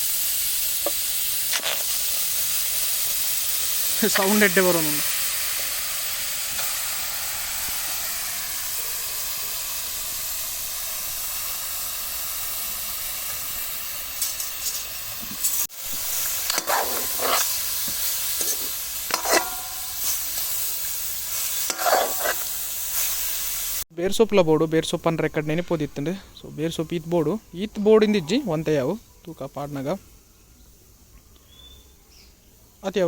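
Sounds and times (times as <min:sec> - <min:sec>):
chicken sizzling in a pan: 0:00.0 - 0:23.9
spoon scraping a pan: 0:14.2 - 0:20.6, 0:21.3 - 0:23.1.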